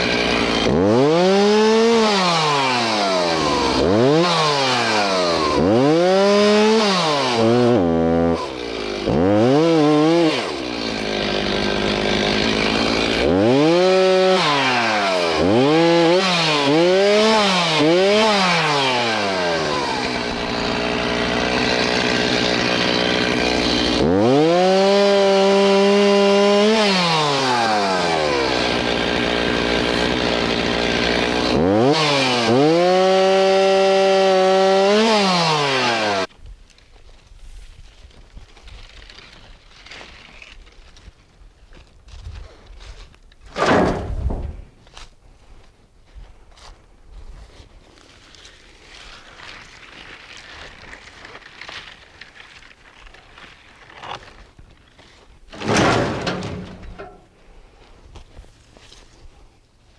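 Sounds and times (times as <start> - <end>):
chainsaw revving: 0.0 - 36.3, 55.6 - 57.3.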